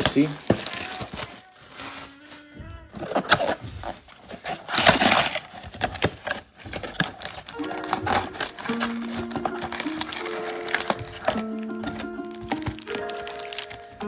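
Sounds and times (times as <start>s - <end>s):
plastic wrapping crinkling and tearing: 0.0s - 14.0s
background music: 7.4s - 14.0s.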